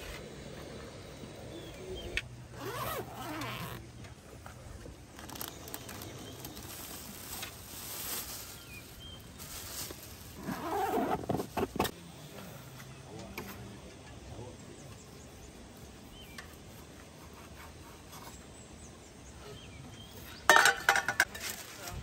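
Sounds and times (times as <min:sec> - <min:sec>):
zipper drawn open: 0:02.5 - 0:03.8, 0:10.4 - 0:11.9
plastic bags crackling: 0:05.0 - 0:11.8.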